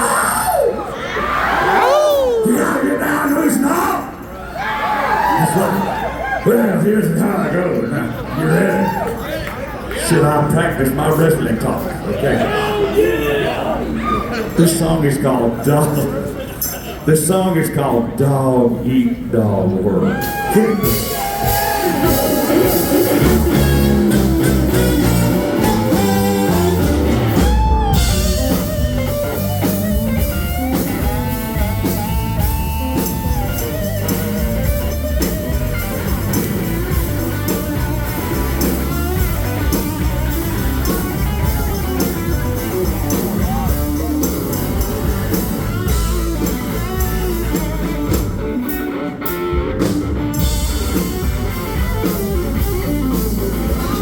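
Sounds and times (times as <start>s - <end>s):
bass: 0.0s - 12.6s, 13.2s - 54.0s
drum kit: 20.1s - 54.0s
electric guitar: 20.1s - 54.0s.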